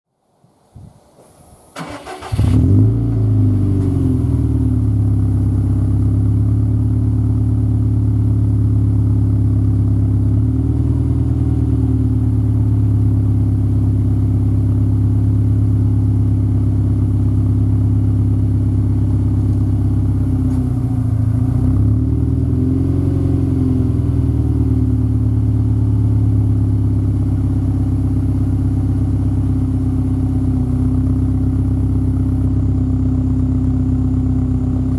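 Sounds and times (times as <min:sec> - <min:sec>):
engine cranking: 0:01.8 - 0:02.6
engine deep idle: 0:04.2 - 0:34.9.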